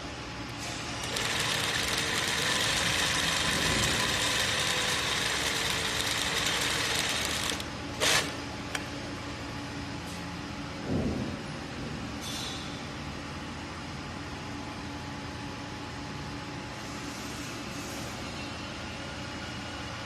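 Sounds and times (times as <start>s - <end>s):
sewing machine stitching: 1.0s - 8.3s.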